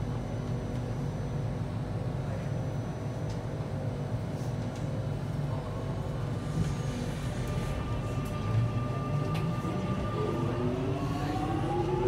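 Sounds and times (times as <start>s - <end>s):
electric train humming: 6.2s - 12.0s.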